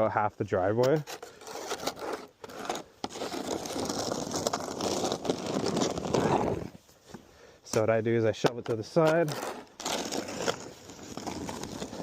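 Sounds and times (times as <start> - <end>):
snow shovel scraping through snow: 1.0 - 6.8, 8.9 - 12.0.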